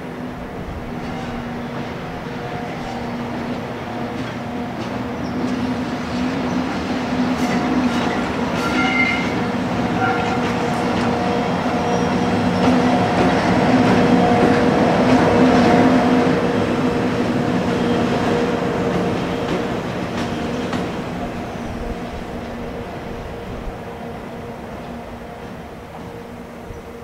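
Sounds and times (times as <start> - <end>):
electric locomotive hum: 0.0 - 27.0
train wheels rumbling on rail: 0.0 - 27.0.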